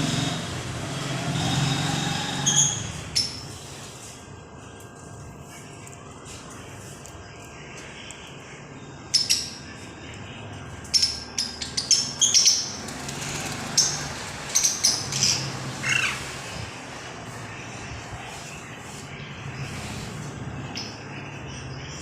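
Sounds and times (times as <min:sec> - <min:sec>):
parrot squawking: 0:13.8 - 0:16.4.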